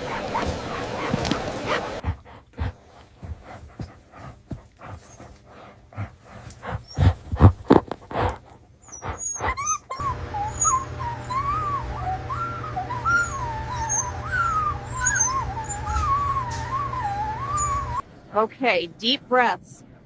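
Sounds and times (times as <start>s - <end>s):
dog whining: 0.0s - 2.7s, 4.8s - 18.0s
steady low hum: 0.0s - 20.0s.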